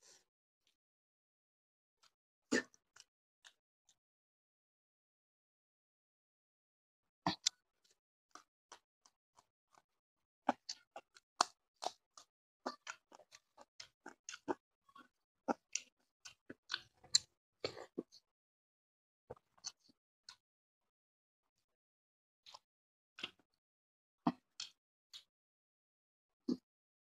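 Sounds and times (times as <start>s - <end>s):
man chewing with wet mouth sounds: 2.0s - 3.6s, 7.3s - 9.8s, 10.5s - 18.2s, 19.3s - 20.4s.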